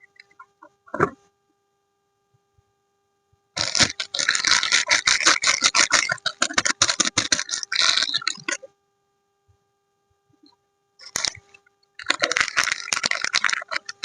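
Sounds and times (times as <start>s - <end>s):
plastic packaging crinkling: 3.6s - 8.6s, 11.0s - 14.0s.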